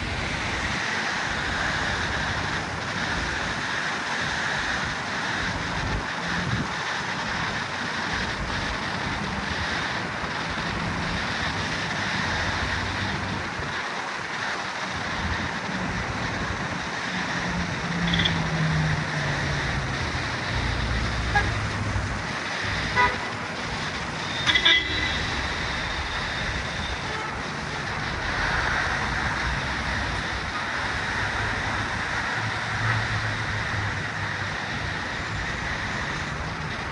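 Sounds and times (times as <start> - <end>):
traffic tyre hiss and engines: 0.0 - 36.9
car horn toots: 21.2 - 21.8, 22.9 - 23.5, 24.3 - 25.4.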